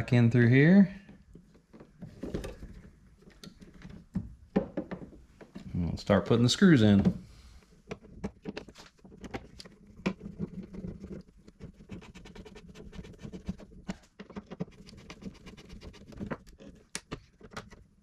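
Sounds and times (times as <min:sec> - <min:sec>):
screwdriver clicking and scratching: 0:07.9 - 0:17.9.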